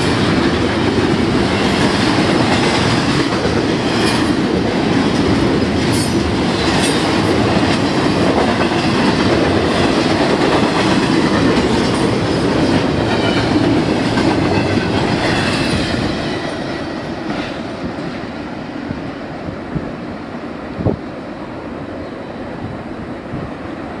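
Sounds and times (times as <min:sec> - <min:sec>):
freight cars rolling on rails: 0:00.0 - 0:18.4.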